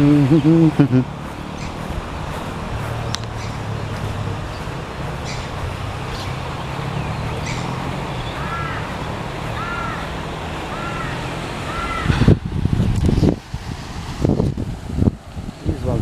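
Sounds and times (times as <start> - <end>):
bird calling: 0.0 - 12.3
low outdoor rumble: 0.0 - 16.0.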